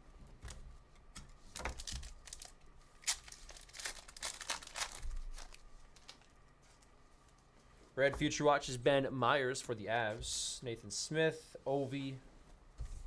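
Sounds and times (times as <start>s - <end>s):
foil wrapper tearing and crinkling: 1.5s - 6.9s.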